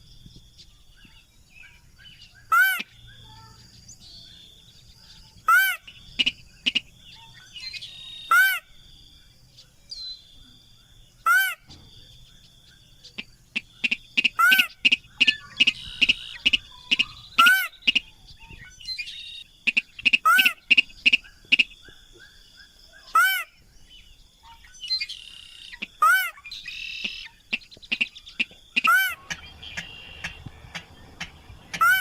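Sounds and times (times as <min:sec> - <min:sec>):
faint bird chirps: 0:00.0 - 0:32.0.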